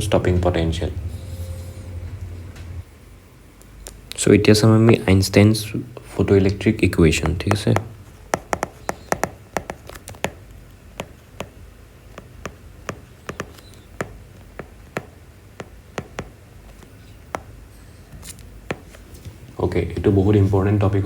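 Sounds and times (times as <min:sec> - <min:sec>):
low room hum: 0:00.0 - 0:21.0
pen tapping while writing: 0:07.2 - 0:17.6, 0:18.7 - 0:19.0.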